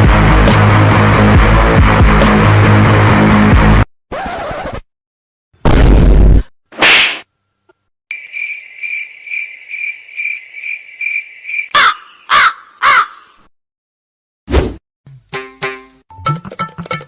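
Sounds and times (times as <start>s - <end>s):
cricket chirping: 8.1s - 11.7s
crow cawing: 8.6s - 13.5s.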